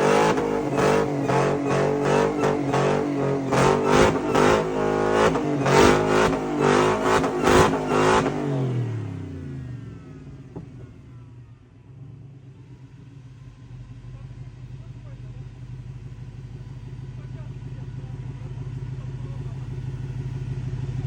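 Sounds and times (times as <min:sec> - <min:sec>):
engine revving hard: 0:00.0 - 0:10.0.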